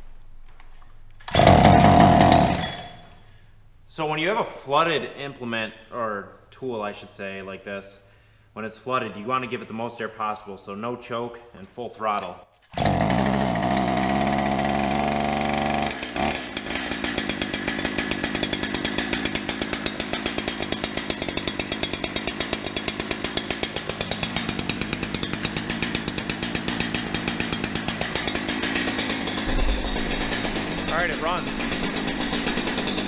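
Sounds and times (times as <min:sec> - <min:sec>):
chainsaw running: 0:01.2 - 0:03.2, 0:12.7 - 0:33.0.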